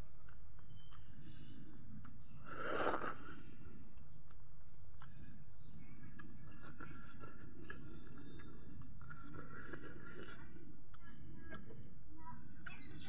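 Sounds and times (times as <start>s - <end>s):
low background noise: 0.0s - 13.0s
mouth smack while eating: 2.0s - 3.4s.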